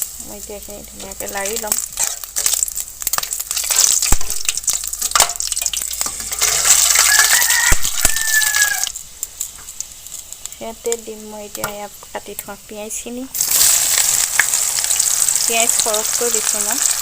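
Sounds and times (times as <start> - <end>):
spices sizzling in hot oil: 0.0 - 17.0
spatula scraping a pan: 6.0 - 7.4
rooster crowing: 6.8 - 9.0.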